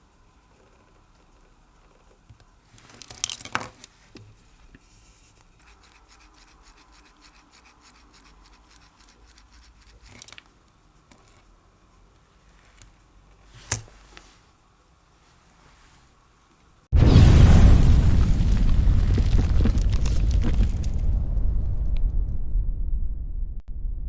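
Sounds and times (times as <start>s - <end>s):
watch clicking: 5.5s - 10.5s
fine ticking or ratcheting: 5.6s - 10.4s.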